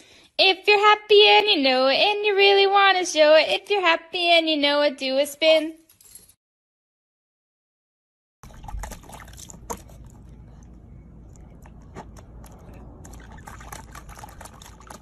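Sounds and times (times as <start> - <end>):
puppy splashing in water: 8.4 - 15.0
water sloshing and dripping: 8.4 - 15.0.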